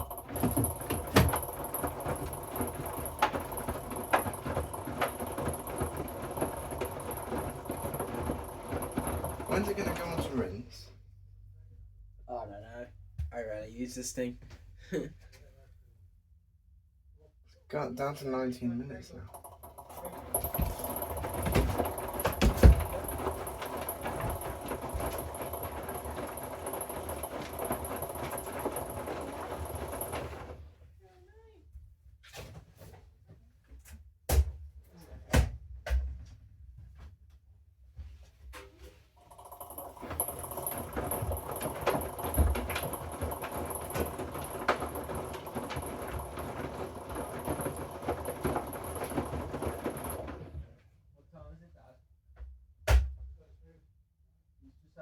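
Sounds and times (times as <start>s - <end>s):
washing machine tumbling: 0.0s - 10.7s, 19.3s - 30.8s, 39.2s - 50.8s.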